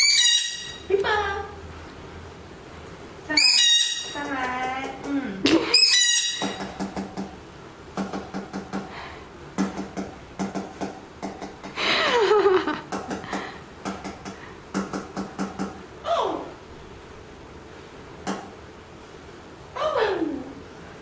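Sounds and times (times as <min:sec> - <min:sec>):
parrot call: 0:00.0 - 0:00.9, 0:03.3 - 0:04.3, 0:05.6 - 0:06.8
sharp clicks and knocks: 0:06.4 - 0:08.9, 0:09.6 - 0:11.8, 0:12.8 - 0:15.8, 0:18.2 - 0:18.5.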